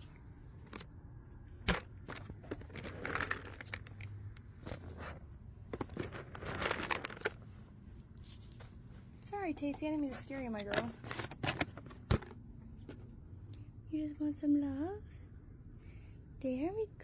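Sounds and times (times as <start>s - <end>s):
rustling handling noise: 1.6s - 13.1s.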